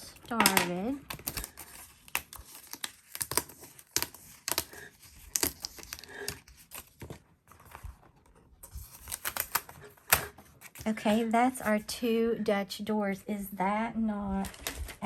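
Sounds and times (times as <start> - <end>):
paper crinkling: 0.0 - 11.9.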